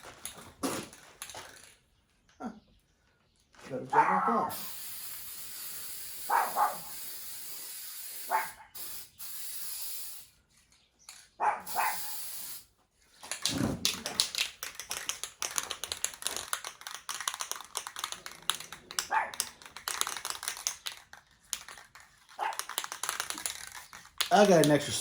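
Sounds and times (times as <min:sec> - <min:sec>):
dog barking: 0:03.9 - 0:04.5, 0:06.3 - 0:06.9, 0:08.3 - 0:08.7, 0:11.4 - 0:12.2, 0:19.1 - 0:19.4, 0:22.4 - 0:22.6
spray can hissing: 0:04.5 - 0:10.4, 0:11.7 - 0:12.7, 0:14.2 - 0:25.0
spray can shaken rattling: 0:04.5 - 0:25.0.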